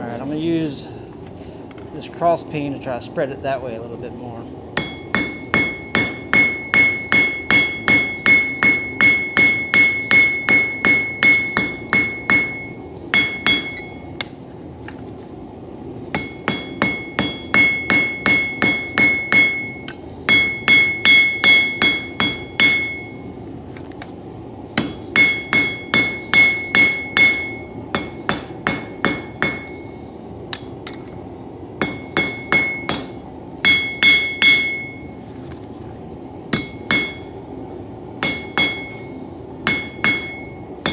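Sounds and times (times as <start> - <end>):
anvil ringing: 4.8 - 14.4, 16.2 - 23.3, 24.8 - 31.2, 31.8 - 35.2, 36.6 - 37.4, 38.2 - 40.9
hammer striking steel on anvil: 4.8 - 14.4, 16.1 - 23.3, 24.8 - 35.2, 36.5 - 37.4, 38.2 - 40.9.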